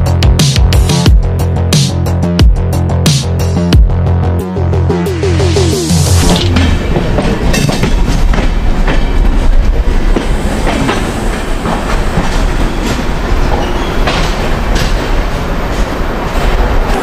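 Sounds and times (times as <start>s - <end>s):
train wheels clacking on rails: 6.3s - 17.0s.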